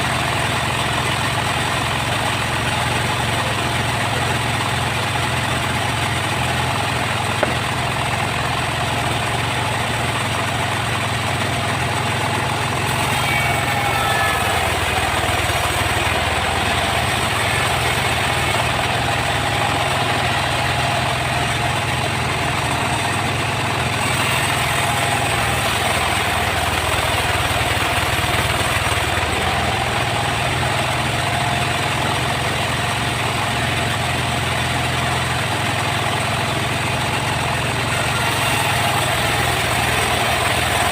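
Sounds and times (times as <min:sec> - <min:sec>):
sawmill machinery engine hum: 0:00.0 - 0:40.9.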